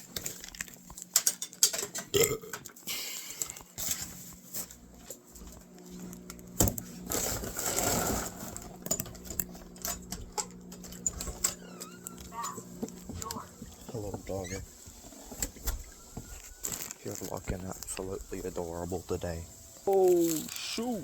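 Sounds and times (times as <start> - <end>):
small things clicking and rattling: 0.0 - 21.0
rustling scrape: 6.9 - 9.0, 13.4 - 21.0.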